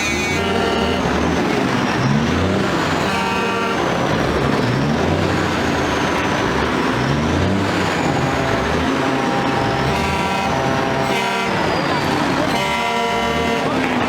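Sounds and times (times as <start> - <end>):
truck horn blast: 0.0 - 4.6, 7.4 - 14.0
truck engines running: 0.0 - 14.0.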